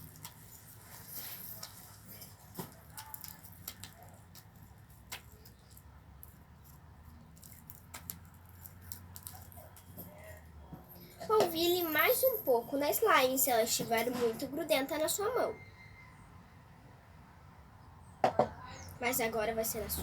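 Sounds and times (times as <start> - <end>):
slime squelching in hands: 0.0 - 10.6.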